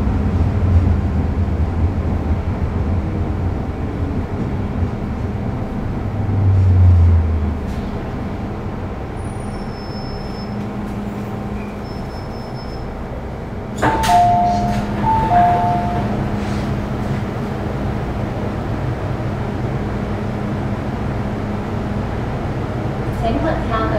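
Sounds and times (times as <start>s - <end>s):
vehicle rumbling in motion: 0.0s - 23.9s
two-note chime: 13.9s - 16.1s.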